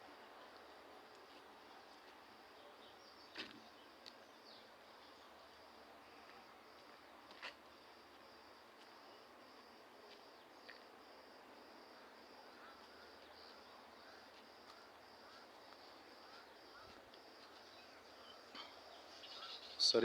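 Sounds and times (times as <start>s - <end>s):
soft bird chirps: 12.5s - 20.0s.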